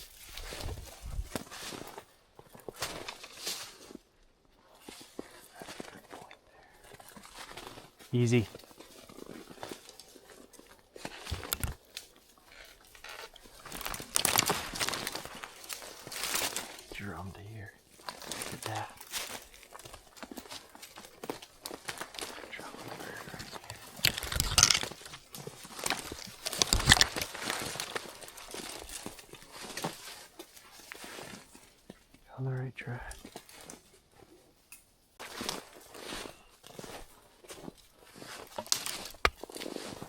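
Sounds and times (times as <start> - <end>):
loud rustle and crackle: 8.6 - 16.9, 17.9 - 31.8.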